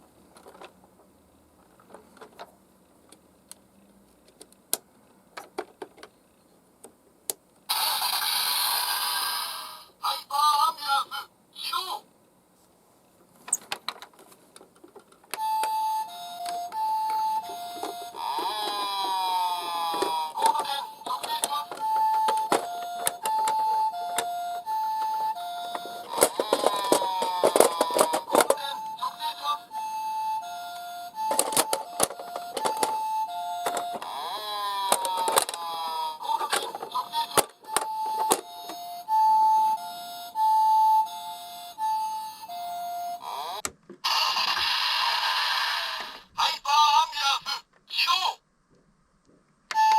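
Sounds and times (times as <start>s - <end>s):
two-tone ambulance siren: 15.4s - 18.8s, 19.4s - 34.0s, 37.7s - 43.3s
toy cars clattering: 25.8s - 28.8s, 31.3s - 33.0s, 34.8s - 35.7s, 36.3s - 38.5s.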